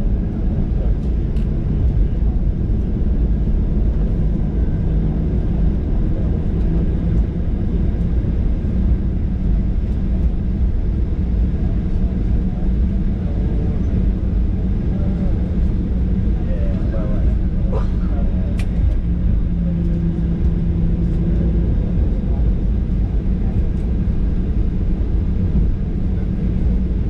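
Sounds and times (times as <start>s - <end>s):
airplane cabin rumble: 0.0s - 27.0s.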